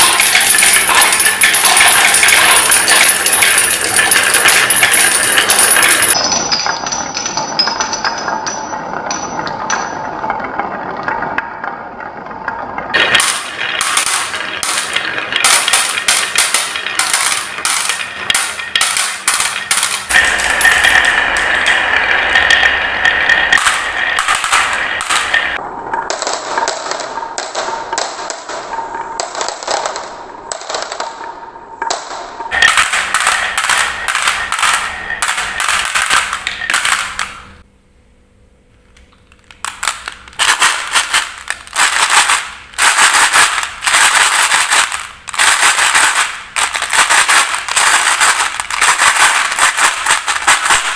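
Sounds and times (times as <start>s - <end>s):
marbles clattering down marble run: 0.0s - 37.7s, 39.5s - 50.9s.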